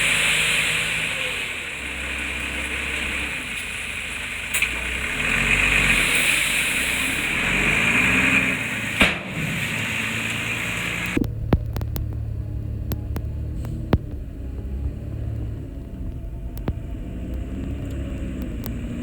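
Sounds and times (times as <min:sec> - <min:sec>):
heavy diesel machinery engine: 0:00.0 - 0:19.0
sharp clicks and knocks: 0:11.0 - 0:14.6, 0:15.7 - 0:18.8.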